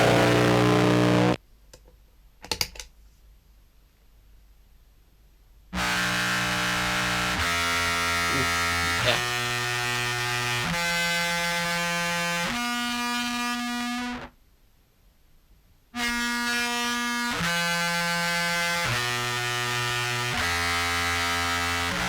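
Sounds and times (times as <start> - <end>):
fuzzed contrabass clarinet notes: 0.0 - 1.4, 5.9 - 9.7.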